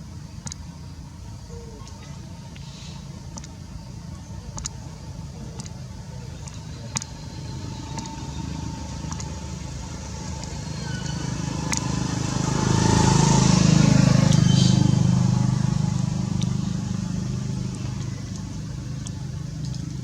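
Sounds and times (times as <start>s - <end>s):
sharp clicks: 0.4s - 0.7s, 3.3s - 3.6s, 4.5s - 4.9s, 6.4s - 12.0s, 17.3s - 20.0s
vehicle engine passing by: 6.4s - 20.0s.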